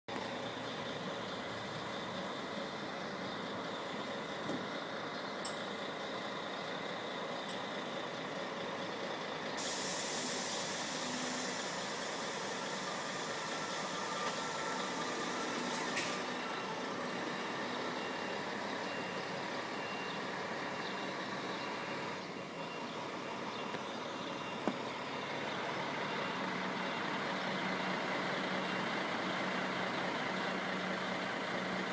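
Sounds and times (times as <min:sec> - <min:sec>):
diesel engine idling: 0:00.1 - 0:31.9
air hissing: 0:09.6 - 0:14.6.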